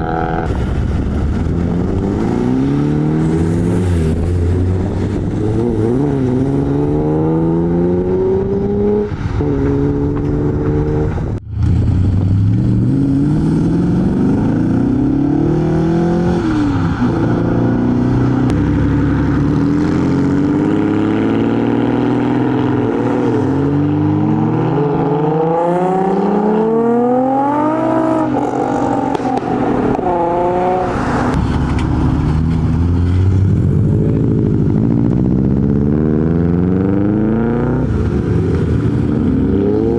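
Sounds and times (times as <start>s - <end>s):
car engines revving and accelerating: 0.0s - 39.9s.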